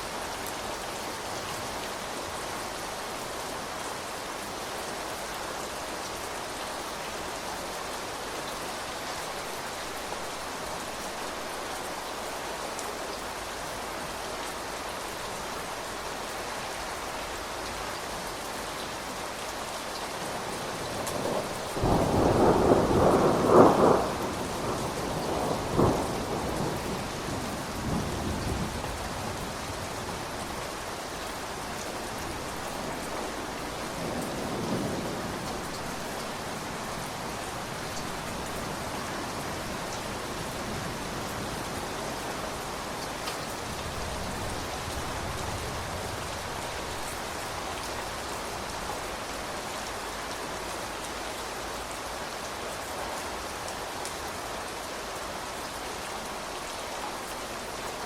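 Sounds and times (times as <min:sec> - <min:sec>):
steady rain: 0:00.0 - 0:58.0
thunder clap and rumble: 0:21.1 - 0:28.8.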